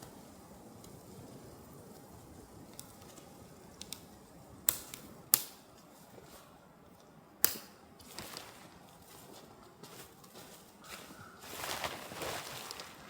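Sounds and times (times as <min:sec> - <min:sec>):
faint clicks: 0:02.6 - 0:06.3.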